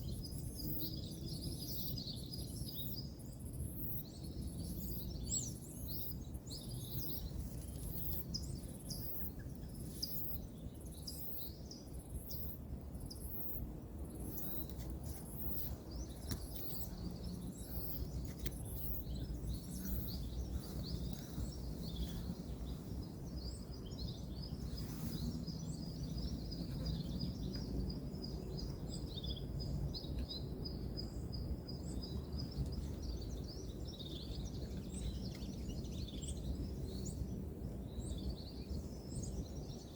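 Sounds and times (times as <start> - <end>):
birds chirping: 4.8 - 38.6
distant road traffic rumble: 12.4 - 36.8.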